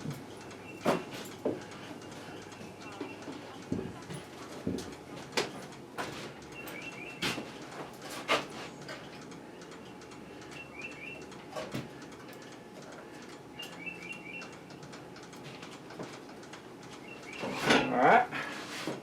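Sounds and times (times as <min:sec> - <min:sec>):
small bird chirping: 0:10.6 - 0:11.2, 0:13.6 - 0:14.5.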